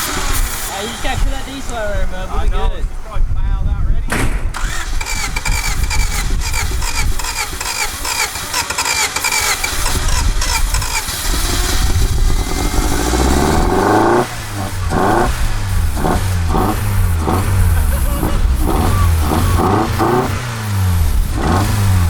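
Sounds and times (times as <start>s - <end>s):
engine revving up: 0.0s - 1.6s, 4.5s - 22.0s
engine cranking by starter: 0.0s - 2.0s, 4.1s - 22.0s.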